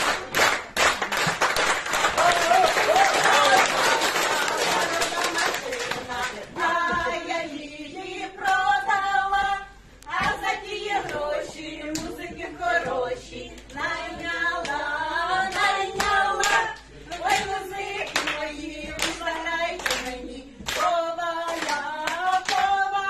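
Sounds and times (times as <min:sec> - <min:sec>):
hand claps: 0:00.0 - 0:06.3, 0:15.5 - 0:22.8
people singing together: 0:02.1 - 0:23.0.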